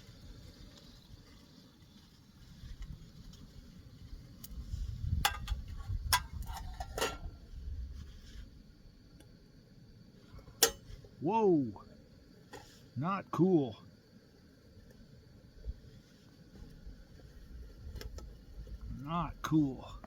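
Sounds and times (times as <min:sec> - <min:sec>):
metal cookware clinking: 0:05.3 - 0:07.3, 0:10.6 - 0:10.9.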